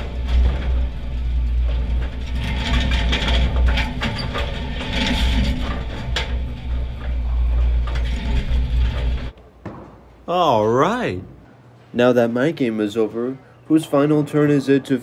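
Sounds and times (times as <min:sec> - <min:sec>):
mechanical rumble: 0:00.0 - 0:09.4
bowling pins clattering: 0:00.0 - 0:10.2.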